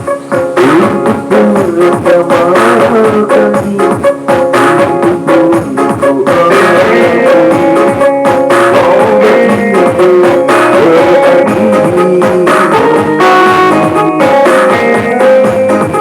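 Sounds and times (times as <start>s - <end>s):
live band music: 0.0s - 16.0s
person singing: 0.0s - 16.0s.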